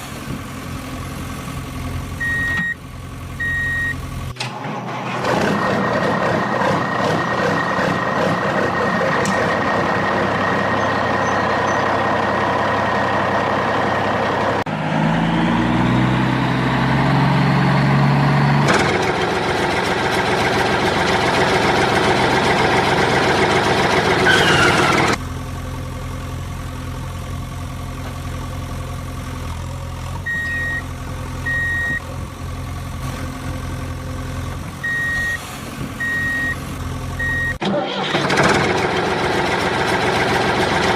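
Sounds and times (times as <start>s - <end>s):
reversing beeper beeps: 2.2s - 2.8s, 3.4s - 4.0s, 30.3s - 30.8s, 31.5s - 32.0s, 34.8s - 35.4s, 36.0s - 36.6s, 37.2s - 37.6s
vehicle engine running: 5.0s - 37.6s, 38.2s - 40.9s.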